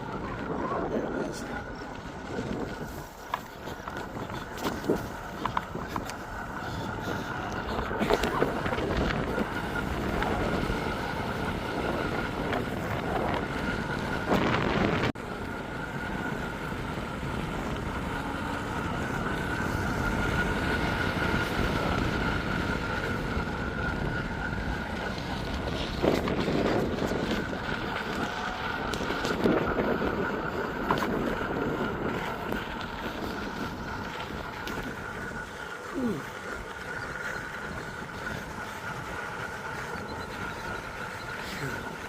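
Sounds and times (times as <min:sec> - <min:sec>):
faint constant whine: 0:00.0 - 0:42.0
wind buffeting microphone: 0:00.0 - 0:42.0.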